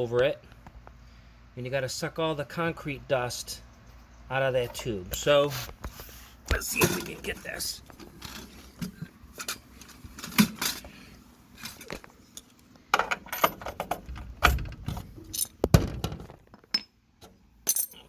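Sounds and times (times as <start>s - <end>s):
metallic clinks of anchor bolt: 17.6s - 18.0s.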